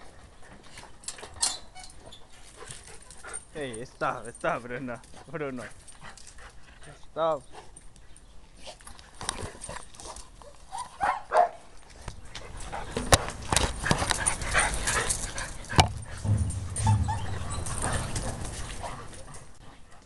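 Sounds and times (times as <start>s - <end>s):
sharp knocks: 15.7s - 18.9s
dog yipping and whining: 16.2s - 18.7s.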